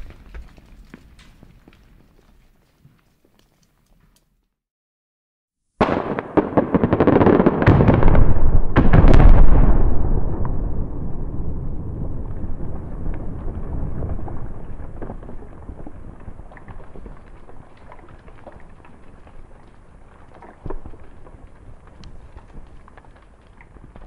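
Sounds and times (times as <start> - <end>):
sharp cracks of detonating charges: 5.8 - 15.7
heavy explosion booms: 5.8 - 16.4.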